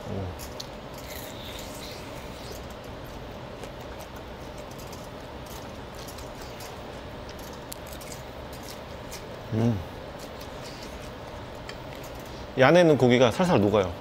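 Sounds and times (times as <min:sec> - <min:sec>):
background hum: 0:00.0 - 0:14.0
chewing crispy food: 0:00.1 - 0:12.3.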